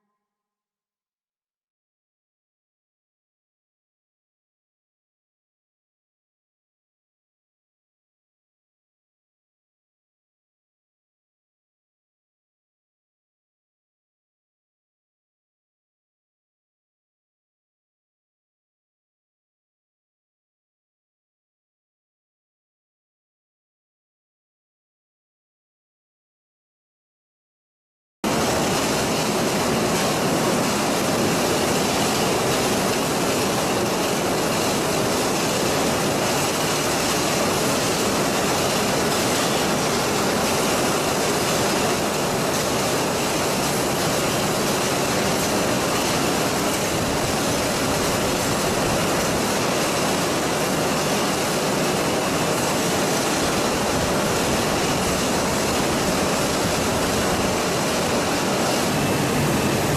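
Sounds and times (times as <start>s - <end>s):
machinery running: 28.3s - 59.9s.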